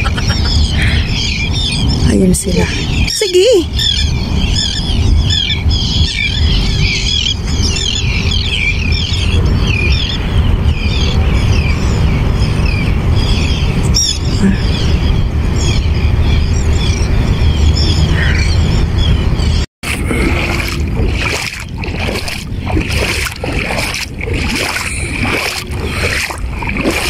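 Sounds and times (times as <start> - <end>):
flock of birds chirping: 0.0 - 19.7
wind rumble on microphone: 0.0 - 27.0.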